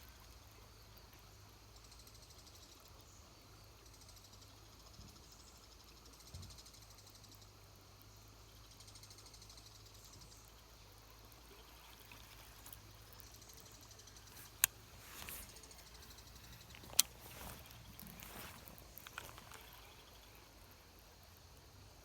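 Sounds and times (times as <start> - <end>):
soft rush of noise: 11.8 - 21.0
sharp clicks: 12.1 - 20.0.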